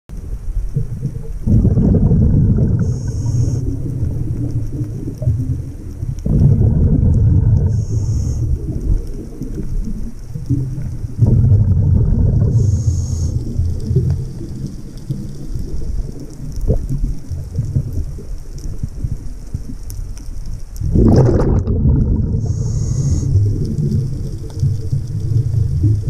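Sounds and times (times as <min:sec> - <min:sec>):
rumbling exhaled bubbles: 0:00.1 - 0:26.0
regulator inhalation hiss: 0:02.8 - 0:03.7, 0:07.7 - 0:08.7, 0:12.5 - 0:13.6, 0:22.4 - 0:23.6.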